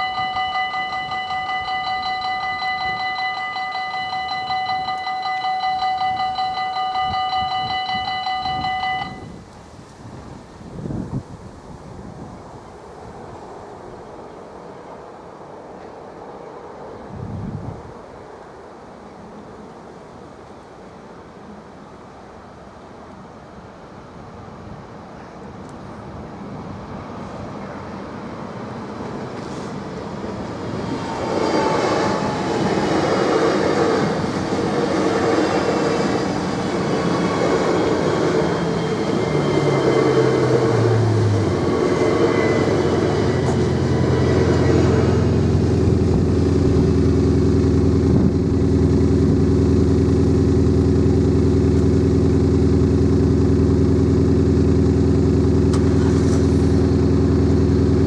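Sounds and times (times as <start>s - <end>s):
train wheel and running noise: 0.0s - 58.0s
low motor whine: 30.5s - 58.0s
steady low drone: 30.7s - 58.0s.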